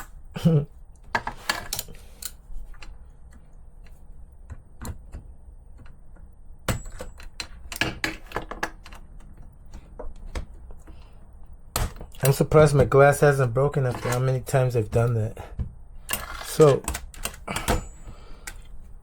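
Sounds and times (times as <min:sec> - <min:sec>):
small parts clicking and tapping: 0:16.0 - 0:18.8.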